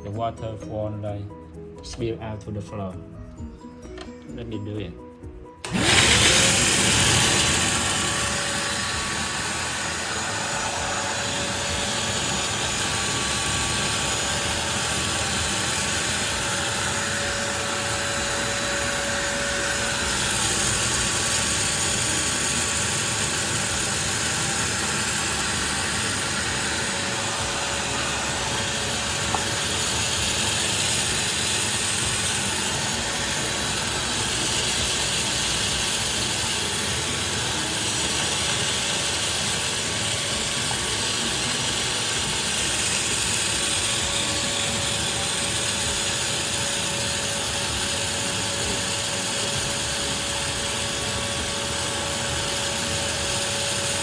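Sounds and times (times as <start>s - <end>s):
wet vacuum cleaner running: 5.6s - 54.0s.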